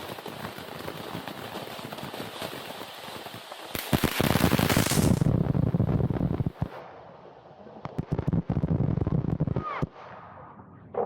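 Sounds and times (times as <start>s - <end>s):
firework bangs: 0.0s - 6.8s
firework crackling: 0.0s - 6.8s.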